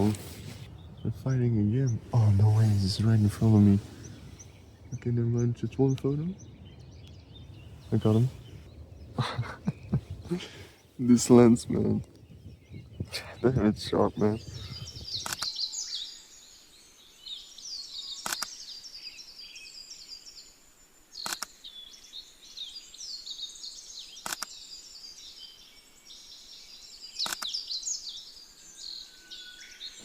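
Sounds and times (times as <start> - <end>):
songbirds singing in chorus: 0.0 - 30.0
sharp click: 18.2 - 18.5, 21.2 - 21.6, 24.2 - 24.6, 27.2 - 27.6.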